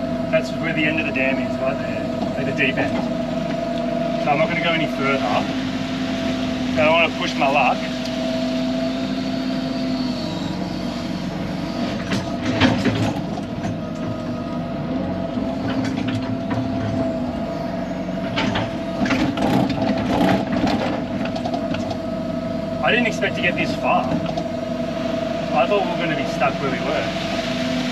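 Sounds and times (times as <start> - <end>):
excavator diesel engine running: 0.0 - 27.9
hydraulic whine: 0.0 - 27.9
machine clanks and knocks: 11.9 - 14.2, 15.6 - 17.1, 18.2 - 22.0.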